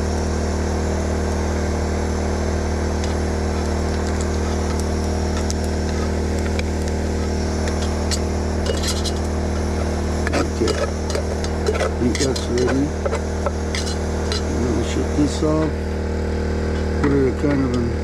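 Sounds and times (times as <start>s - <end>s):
generator humming: 0.0s - 18.0s
food frying in grease: 1.2s - 15.2s.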